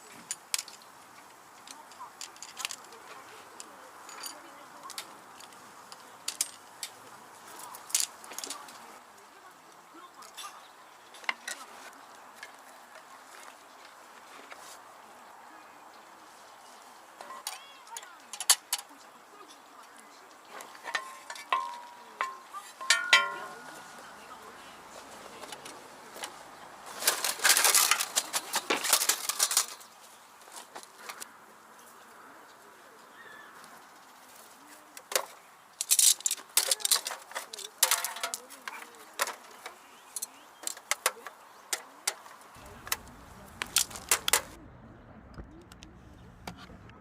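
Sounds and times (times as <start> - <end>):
rustling and clattering: 0.0 - 9.0, 17.1 - 19.0, 20.4 - 31.3, 33.9 - 44.6
metal gear clinking: 20.8 - 23.9, 35.8 - 39.4
sharp clicks and knocks: 35.0 - 44.6.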